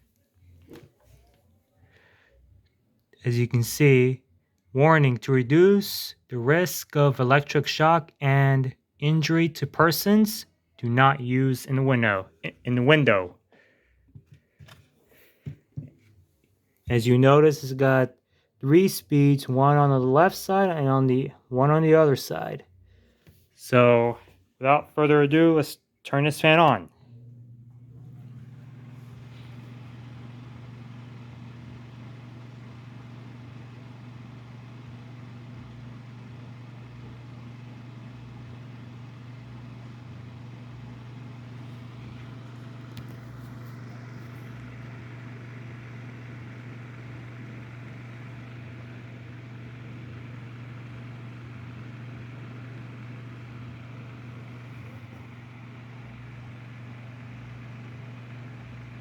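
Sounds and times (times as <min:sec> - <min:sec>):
electric fan motor hum: 0:27.1 - 0:59.0.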